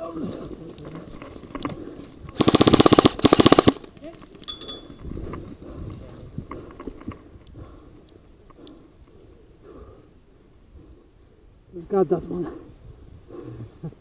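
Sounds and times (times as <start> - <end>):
airsoft rifle full-auto bursts: 2.4 - 3.9.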